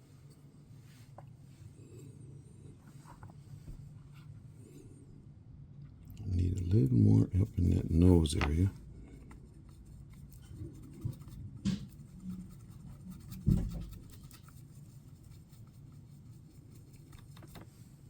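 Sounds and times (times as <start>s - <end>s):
scratching and rubbing on resin: 7.3s - 18.0s.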